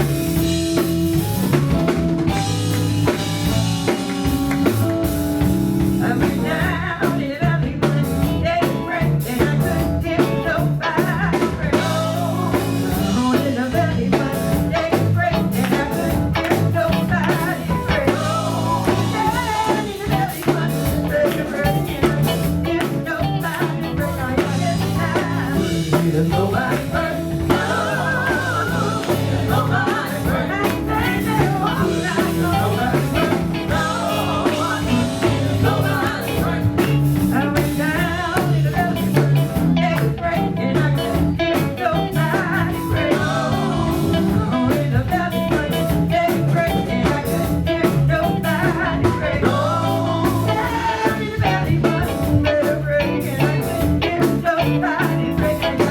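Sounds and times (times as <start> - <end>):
live band playing: 0.0 - 55.9
person singing: 6.0 - 55.9.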